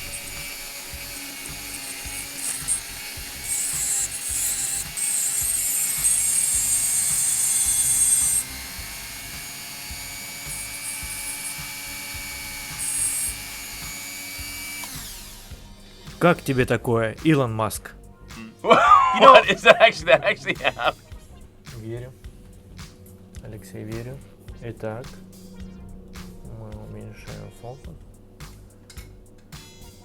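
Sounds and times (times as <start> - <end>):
rotary tool grinding glass: 0.0 - 15.1.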